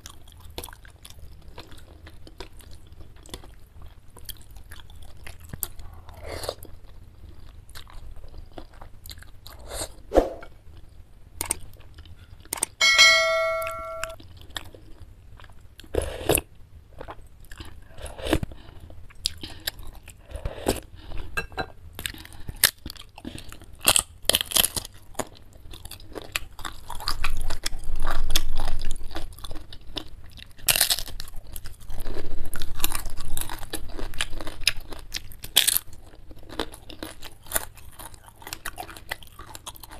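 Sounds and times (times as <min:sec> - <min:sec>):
crunchy chewing: 0:00.0 - 0:10.0, 0:14.2 - 0:21.4, 0:22.0 - 0:39.9
brief ringing tone: 0:12.8 - 0:14.2.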